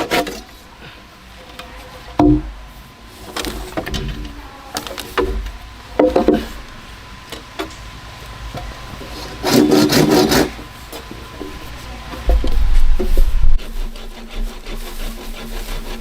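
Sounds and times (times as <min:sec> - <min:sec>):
wood scraping: 0:00.0 - 0:16.0
wood knocking: 0:02.2 - 0:02.6, 0:03.4 - 0:06.6.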